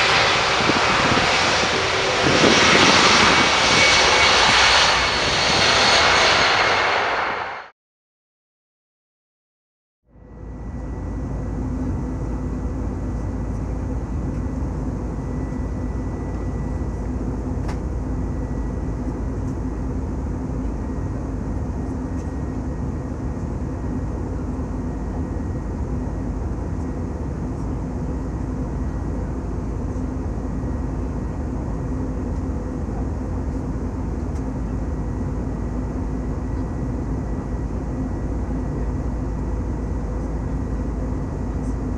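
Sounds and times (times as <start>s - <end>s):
jet engines rumbling: 0.0s - 7.7s, 10.4s - 41.9s.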